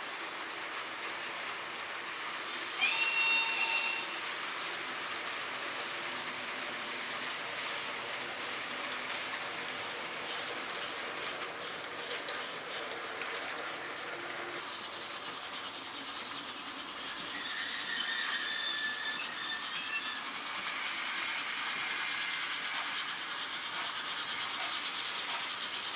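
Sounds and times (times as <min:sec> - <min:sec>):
model train wheels rattling on rails: 0:00.0 - 0:25.9
high-pitched wheel squeal: 0:02.7 - 0:04.3, 0:17.0 - 0:20.4.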